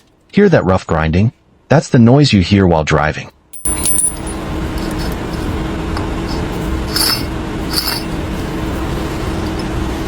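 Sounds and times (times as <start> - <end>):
steady low hum: 3.4 - 10.0
light metallic clinks: 3.6 - 4.4.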